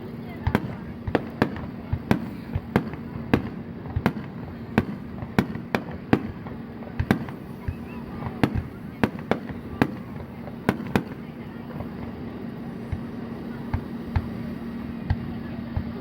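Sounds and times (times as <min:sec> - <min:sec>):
fireworks bangs: 0:00.3 - 0:15.9.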